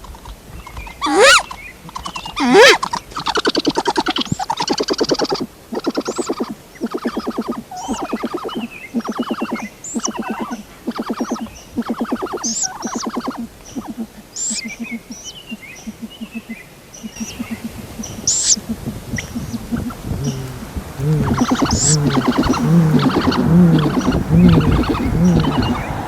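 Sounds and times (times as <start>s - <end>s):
lower louder bird calling: 1.0s - 26.0s
bird rattling trills: 19.2s - 26.0s.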